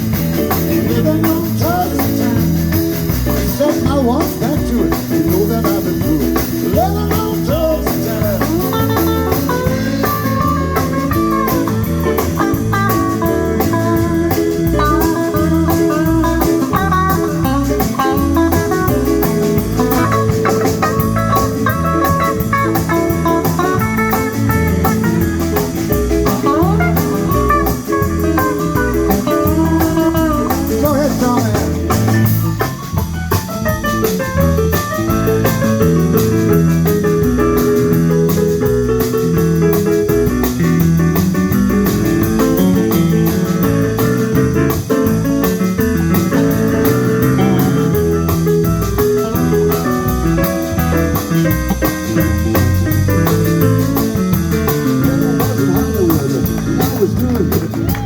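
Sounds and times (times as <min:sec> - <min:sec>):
bass: 0:00.0 - 0:58.0
drums: 0:00.0 - 0:58.0
lead guitar solo: 0:08.6 - 0:30.8, 0:45.4 - 0:58.0.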